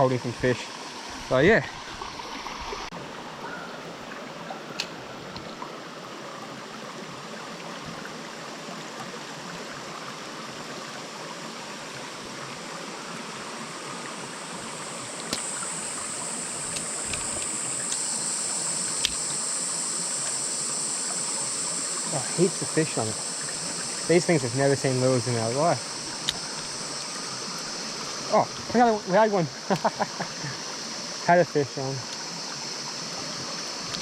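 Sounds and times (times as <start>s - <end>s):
high-pitched hiss: 0.0s - 3.7s, 10.0s - 34.0s
creek water flowing: 0.0s - 34.0s
sharp clicks: 14.9s - 27.7s.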